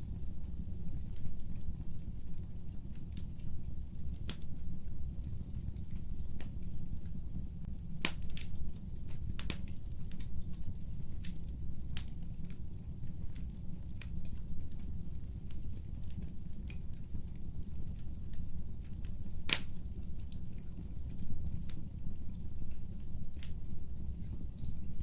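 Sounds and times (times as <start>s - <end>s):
fireplace fire crackling: 0.0s - 25.0s.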